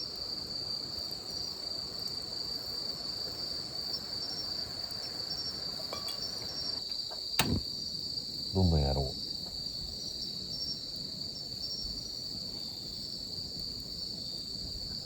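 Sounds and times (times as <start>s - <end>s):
high-pitched insect chorus: 0.0s - 15.0s
low background noise: 8.5s - 9.2s.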